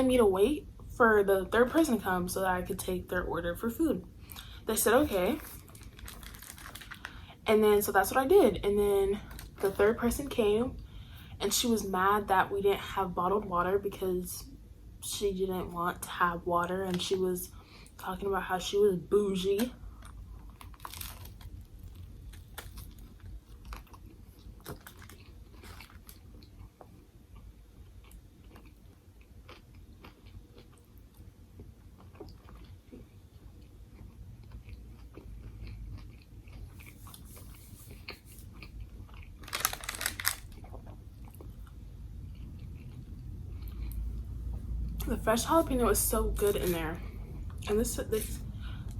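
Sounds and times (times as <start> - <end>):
chewing crunchy sandwich: 5.4 - 7.3, 19.9 - 45.0.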